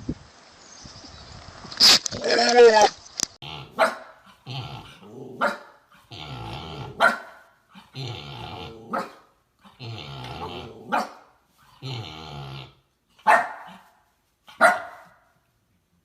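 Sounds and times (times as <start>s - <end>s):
dog growling: 3.4s - 7.1s, 7.8s - 11.0s, 11.8s - 12.8s
dog barking: 3.7s - 4.4s, 5.4s - 5.8s, 6.9s - 7.6s, 8.9s - 9.3s, 10.9s - 11.3s, 13.2s - 15.3s.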